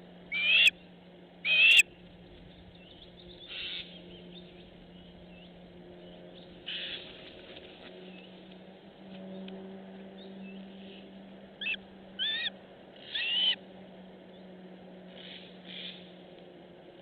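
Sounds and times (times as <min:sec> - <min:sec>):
steady low hum: 0:00.0 - 0:17.0
bird calling: 0:00.3 - 0:00.8, 0:01.4 - 0:01.8, 0:11.6 - 0:13.6.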